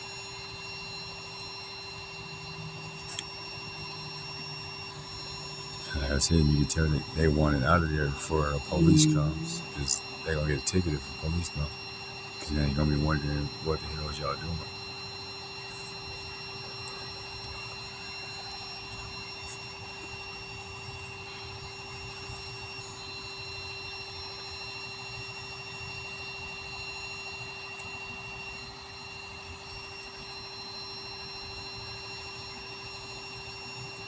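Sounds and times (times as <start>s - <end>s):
faint high whines: 0.0s - 34.0s
distant engine rumbling: 5.9s - 11.7s.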